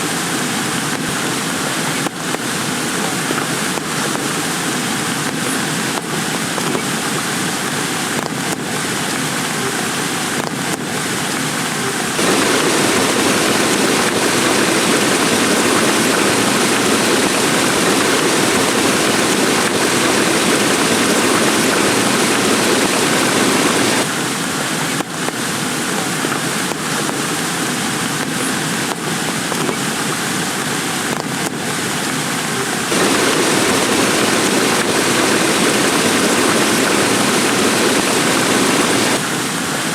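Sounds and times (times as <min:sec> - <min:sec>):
heavy rain falling: 0:12.1 - 0:29.4, 0:32.8 - 0:39.9.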